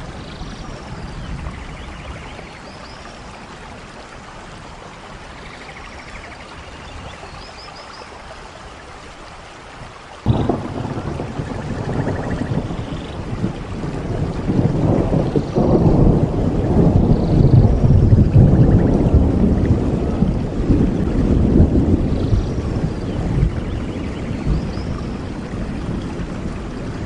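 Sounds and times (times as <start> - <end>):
steady rain: 0.0 - 27.0
thunder rumbling: 10.2 - 27.0.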